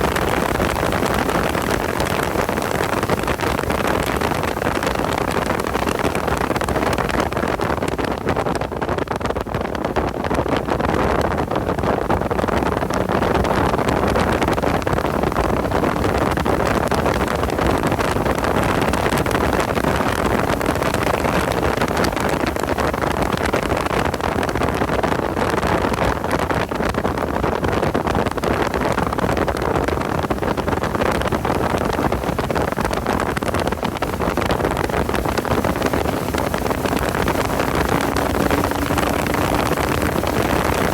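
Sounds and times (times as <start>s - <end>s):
road noise: 0.0s - 10.4s, 28.3s - 40.9s
wind noise: 0.0s - 40.9s
car engine under load: 33.3s - 40.9s.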